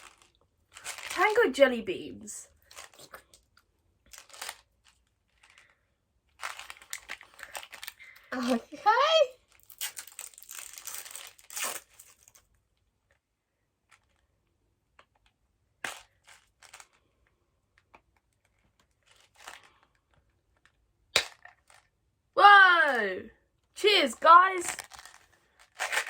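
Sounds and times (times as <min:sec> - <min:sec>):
faint rustles and clicks: 0:00.0 - 0:01.4, 0:02.5 - 0:08.8, 0:13.8 - 0:20.8, 0:24.6 - 0:26.0
snack packet tearing and crinkling: 0:00.0 - 0:01.4, 0:02.6 - 0:05.7, 0:06.3 - 0:08.6, 0:09.4 - 0:12.6, 0:24.6 - 0:26.0.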